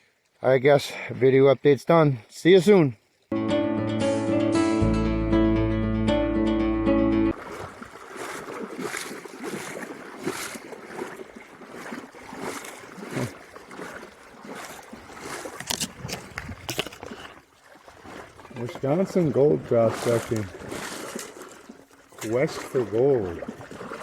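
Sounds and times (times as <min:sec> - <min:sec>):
rush of running water: 0:07.3 - 0:24.0
water splashing and sloshing: 0:07.3 - 0:24.0.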